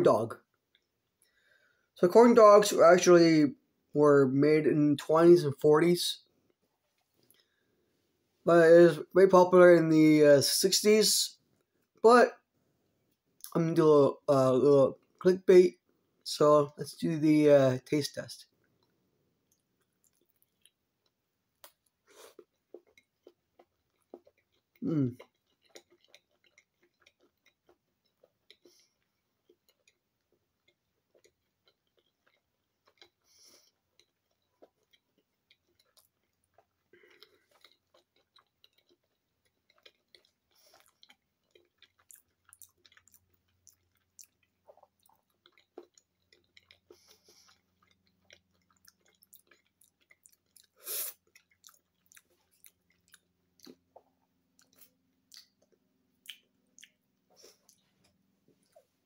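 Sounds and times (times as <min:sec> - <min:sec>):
chewing with wet mouth clicks: 0:18.6 - 0:58.9.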